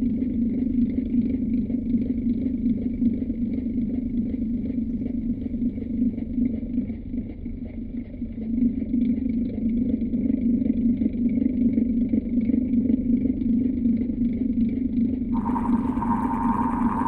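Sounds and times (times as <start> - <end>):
electric fan humming: 15.4 - 17.0.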